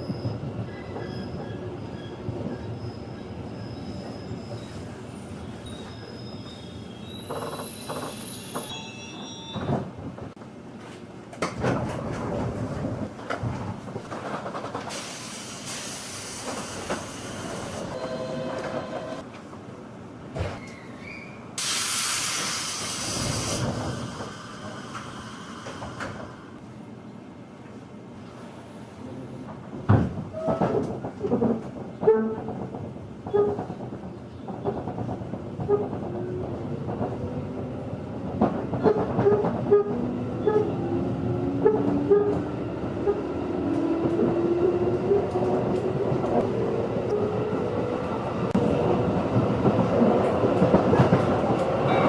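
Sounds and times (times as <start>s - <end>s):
wheel and brake squeals: 0.0s - 9.8s, 20.5s - 21.5s
train wheels rumbling on rail: 0.0s - 52.0s
loud compressed air hiss: 14.9s - 17.8s, 21.6s - 26.4s.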